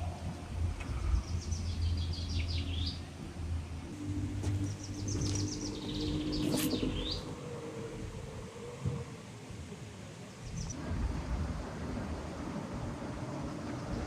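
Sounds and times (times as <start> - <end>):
low outdoor rumble: 0.0 - 14.0
low steady hum: 0.0 - 14.0
songbird singing falling notes: 4.4 - 7.4.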